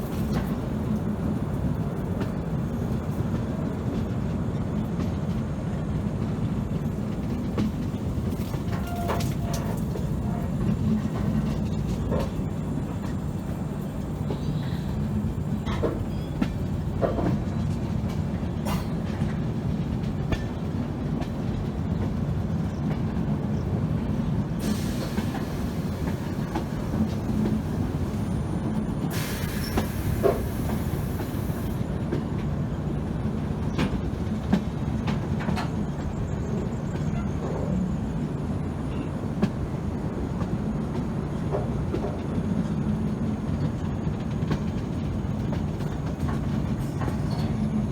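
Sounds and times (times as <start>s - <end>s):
train wheels rumbling on track: 0.0s - 47.9s
hiss: 24.6s - 28.2s, 29.1s - 31.8s.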